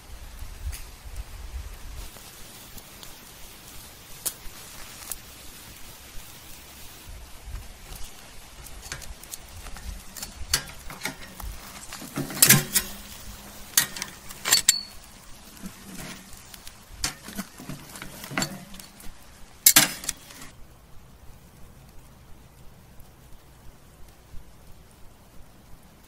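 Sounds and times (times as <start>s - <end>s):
faint crackle: 0.0s - 26.0s
tongs clanking on grill grate: 7.8s - 20.5s.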